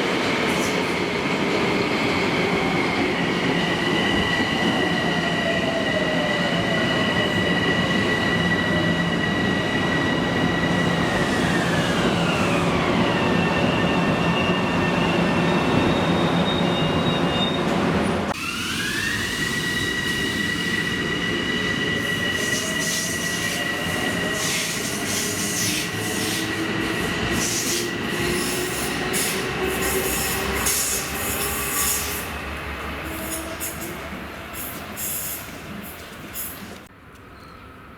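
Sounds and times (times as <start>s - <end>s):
high-pitched wheel squeal: 7.0s - 17.8s.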